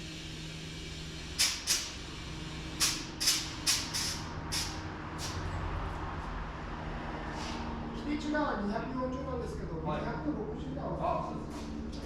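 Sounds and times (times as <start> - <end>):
compressed air hissing: 0.8 - 5.4.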